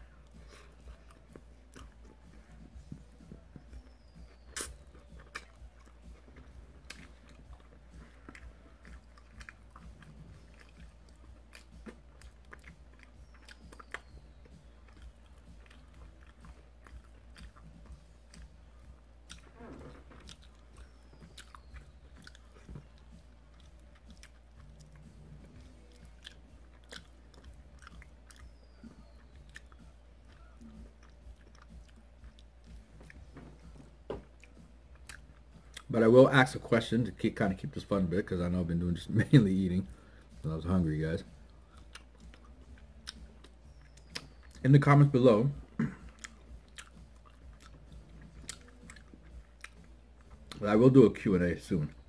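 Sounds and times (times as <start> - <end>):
chewing and biting: 0.0 - 36.0, 41.2 - 50.8
wet mouth clicks and smacks: 0.3 - 18.6, 19.2 - 33.8, 41.6 - 44.6, 46.1 - 50.6.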